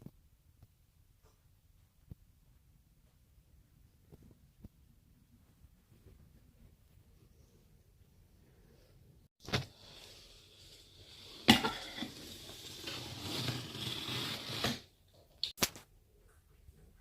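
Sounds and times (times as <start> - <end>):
scraping and rustling: 9.4 - 14.9.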